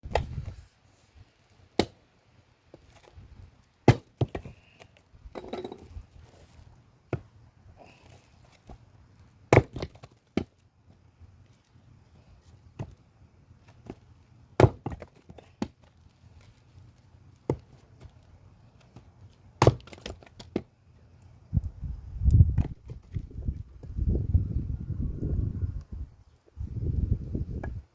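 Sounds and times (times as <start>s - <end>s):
axe cracking into log: 1.8s - 2.0s, 3.8s - 4.5s, 9.5s - 10.5s, 14.6s - 15.7s, 19.6s - 20.6s
knocks and handling: 5.4s - 6.5s.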